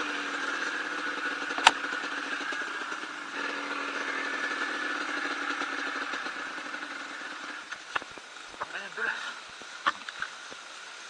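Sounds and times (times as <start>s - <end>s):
dirt bike engine idling: 0.0s - 11.0s
sharp click: 1.6s - 1.8s.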